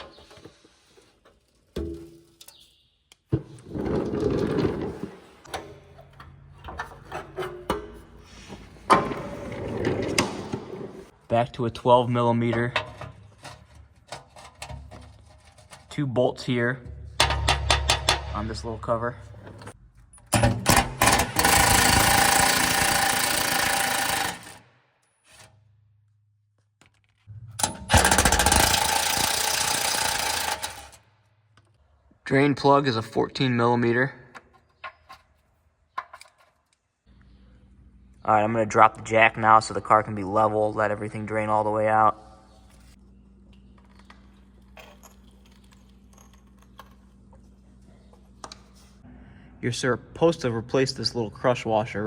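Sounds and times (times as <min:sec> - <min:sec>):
metal scraping and rubbing: 0:12.5 - 0:16.0
impact wrench rattling: 0:17.1 - 0:18.6, 0:20.3 - 0:24.6, 0:27.6 - 0:31.0
tools clicking and knocking: 0:34.3 - 0:36.8.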